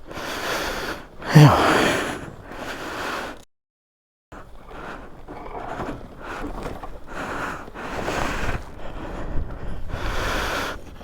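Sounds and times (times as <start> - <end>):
man breathing heavily: 1.2 - 2.2
wind rumble on microphone: 7.6 - 11.0.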